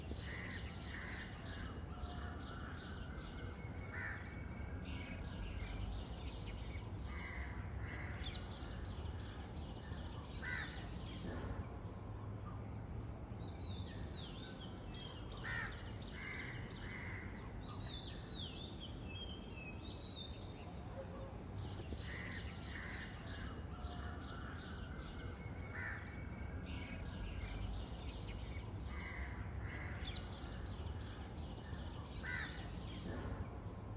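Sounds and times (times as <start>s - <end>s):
crows cawing: 0.2s - 3.0s, 3.9s - 4.3s, 7.1s - 8.4s, 10.4s - 10.8s, 15.4s - 17.4s, 25.7s - 26.1s, 28.9s - 30.2s, 32.2s - 32.7s.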